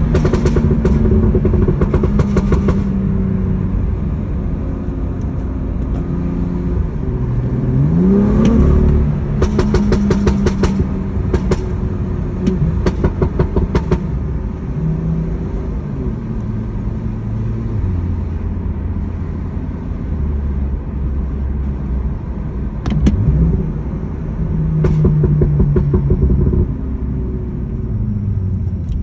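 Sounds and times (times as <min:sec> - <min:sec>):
exhaust crackling and popping: 0:00.0 - 0:03.0, 0:08.4 - 0:14.6, 0:22.8 - 0:27.8
car engine running: 0:00.0 - 0:29.0.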